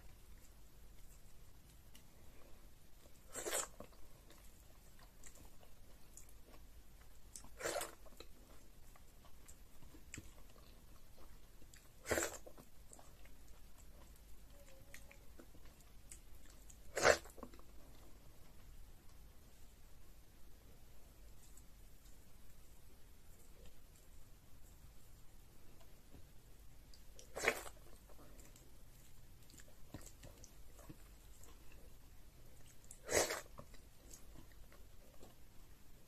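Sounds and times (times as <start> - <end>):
wet chewing sounds: 0.0 - 18.6, 26.8 - 35.4.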